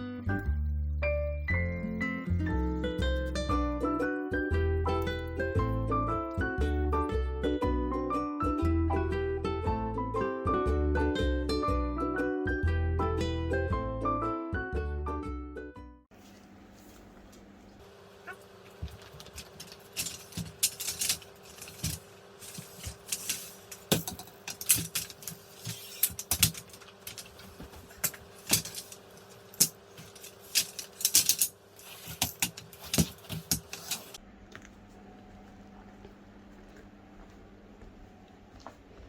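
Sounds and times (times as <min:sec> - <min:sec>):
small hard objects clinking: 0:18.9 - 0:33.4.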